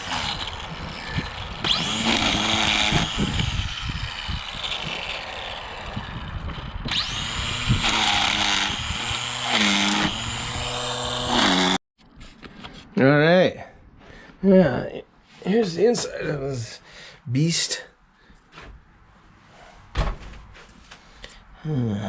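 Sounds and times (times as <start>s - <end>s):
string trimmer engine revving: 0.0s - 11.8s.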